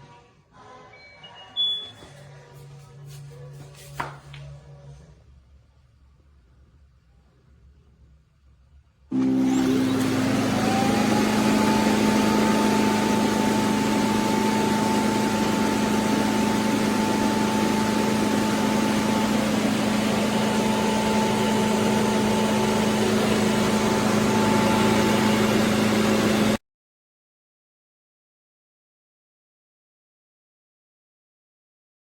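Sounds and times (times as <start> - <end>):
rising motor whine: 9.1 - 26.6
robot vacuum suction motor: 9.1 - 26.6.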